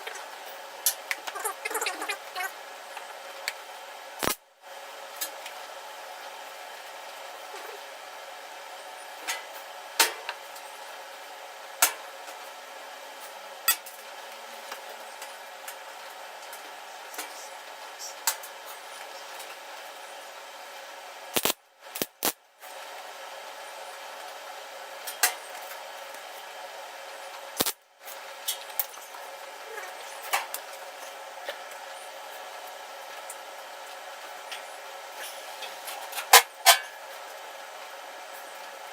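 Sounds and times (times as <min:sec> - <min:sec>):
steady hiss: 0:20.8 - 0:38.9.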